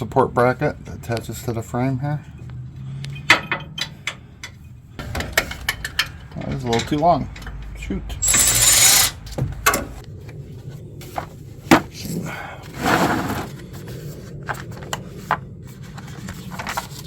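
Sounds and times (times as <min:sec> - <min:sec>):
hand tools clinking and scraping: 0:03.1 - 0:10.0.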